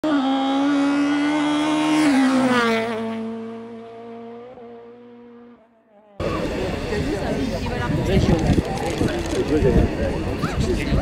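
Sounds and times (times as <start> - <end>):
rally car engine passing: 0.0 - 7.7.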